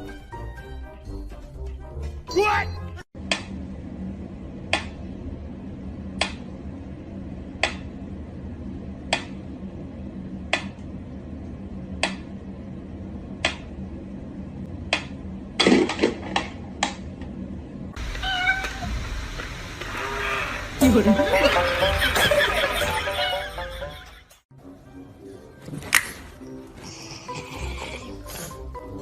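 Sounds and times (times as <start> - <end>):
steady low hum: 3.2 - 24.5.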